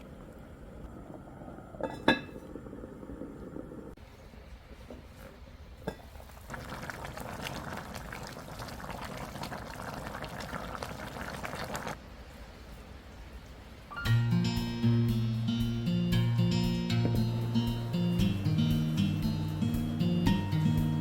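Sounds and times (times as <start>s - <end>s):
stew bubbling in a pot: 0.0s - 12.0s.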